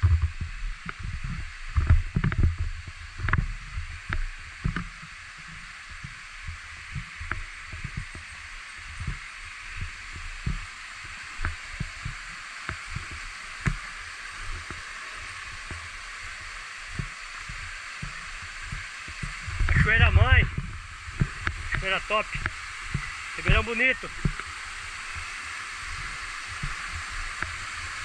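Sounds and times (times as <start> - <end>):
waterfall rushing: 8.4 - 28.0
low thumps: 19.3 - 24.4.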